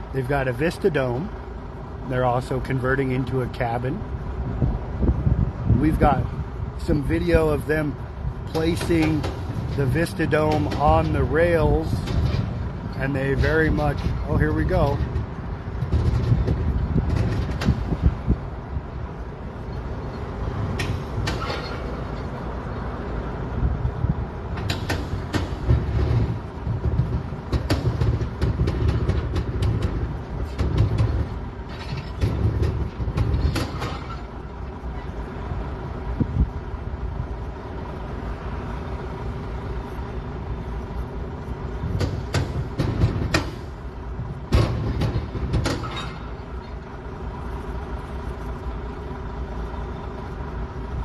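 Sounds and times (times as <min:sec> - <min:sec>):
heavy equipment engines rumbling: 0:00.0 - 0:51.0
metallic clanks and knocks: 0:08.4 - 0:18.2, 0:24.6 - 0:34.4, 0:41.8 - 0:43.9, 0:44.5 - 0:46.8.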